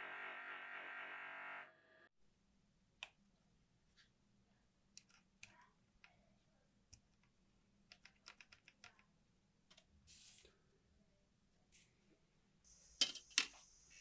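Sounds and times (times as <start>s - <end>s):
clicks and taps of small parts: 4.9s - 6.2s, 6.9s - 9.1s.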